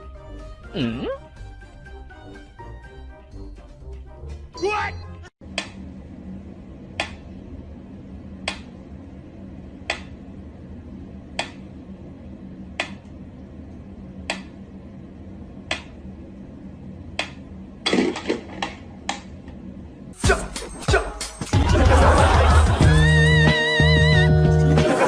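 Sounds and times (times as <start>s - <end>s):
low steady hum: 5.4s - 20.2s.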